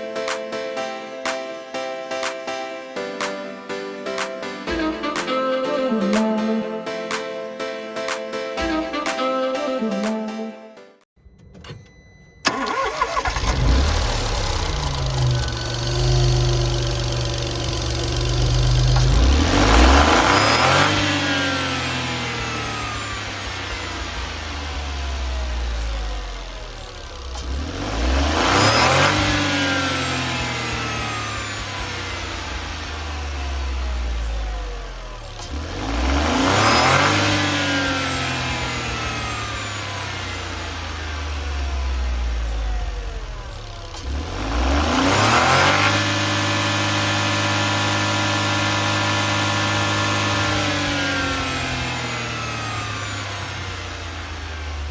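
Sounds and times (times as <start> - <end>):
car engine idling and revving: 12.4 - 54.9.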